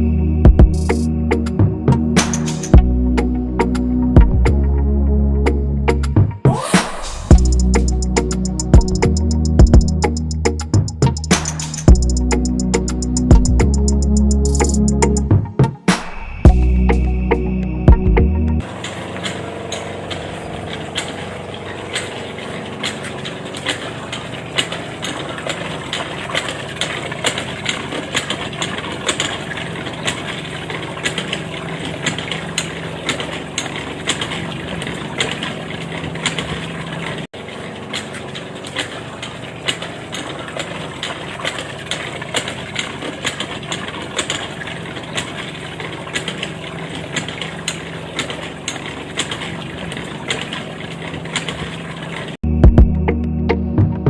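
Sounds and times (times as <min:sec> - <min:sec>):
small engine running: 0:06.5 - 0:15.2, 0:18.6 - 0:52.4
rapid clatter of clicks: 0:07.3 - 0:14.8.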